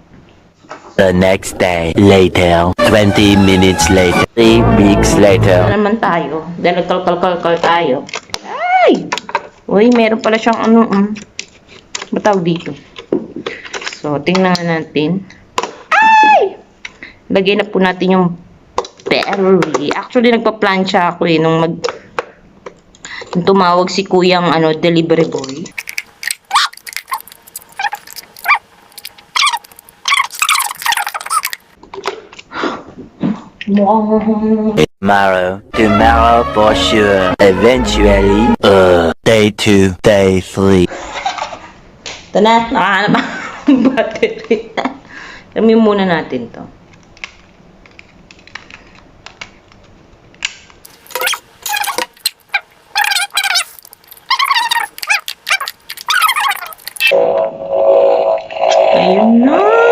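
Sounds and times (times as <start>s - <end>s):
device warbling tones: 1.3s - 5.8s
small dog barking: 28.4s - 28.6s.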